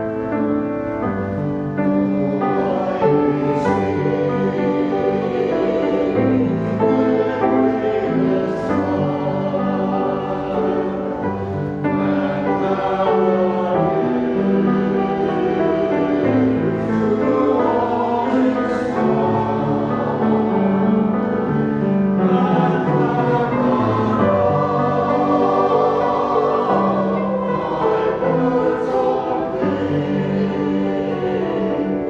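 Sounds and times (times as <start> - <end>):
church choir singing: 0.0 - 32.0.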